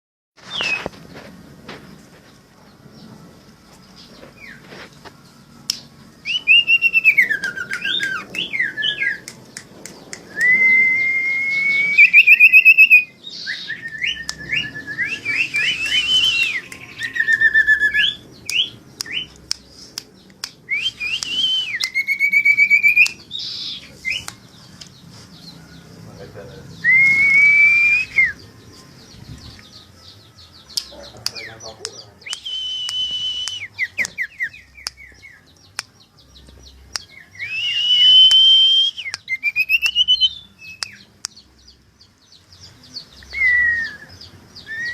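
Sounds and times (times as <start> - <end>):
bird whistling song: 0.4 - 1.0, 5.8 - 19.5, 20.7 - 24.8, 26.7 - 35.6, 36.7 - 44.9.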